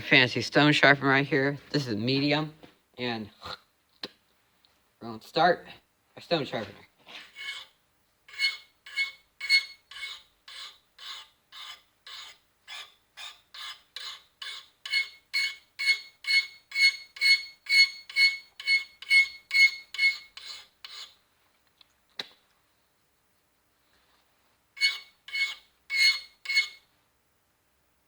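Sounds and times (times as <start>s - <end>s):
knife strokes on sharpening stone: 7.4s - 7.7s, 8.3s - 21.2s, 24.8s - 26.8s.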